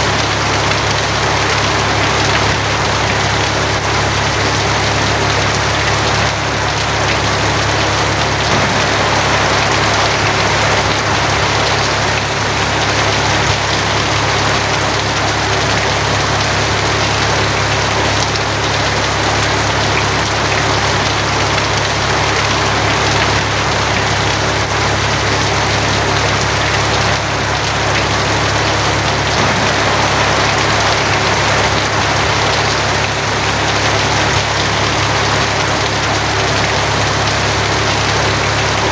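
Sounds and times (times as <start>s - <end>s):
rain on a tin roof: 0.0s - 38.9s
constant low hum: 27.6s - 34.9s.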